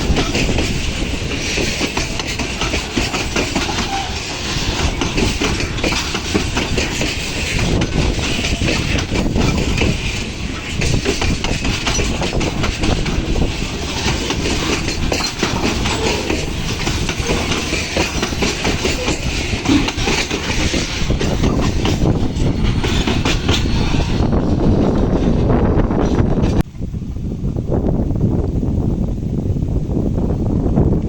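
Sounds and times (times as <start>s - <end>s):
train wheels clattering on rail joints: 0.0s - 26.7s.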